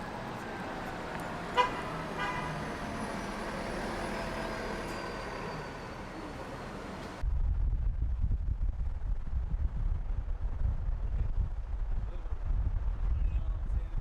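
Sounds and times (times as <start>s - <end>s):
street traffic noise: 0.0s - 7.2s
wind rumble on microphone: 7.2s - 14.0s.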